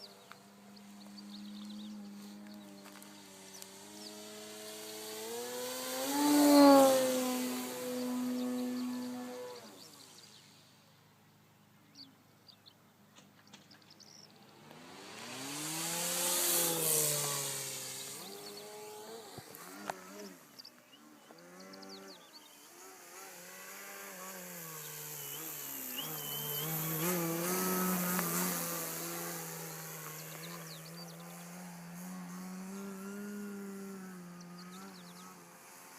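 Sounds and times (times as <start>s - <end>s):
model plane motor whine: 0.0s - 10.6s, 14.5s - 35.9s.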